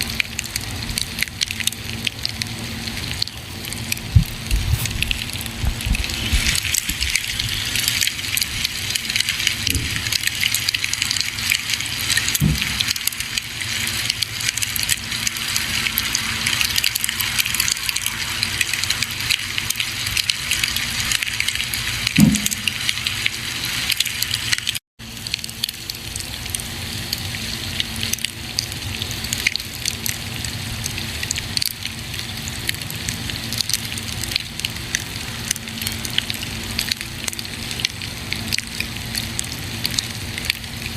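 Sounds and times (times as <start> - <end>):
campfire hissing and crackling: 0.0 - 40.9
wood popping: 12.4 - 12.9.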